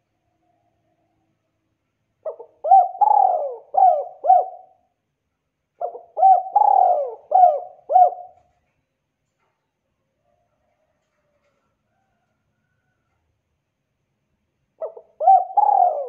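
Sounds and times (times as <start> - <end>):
dove cooing: 2.2 - 4.9, 5.8 - 8.5, 14.8 - 16.0.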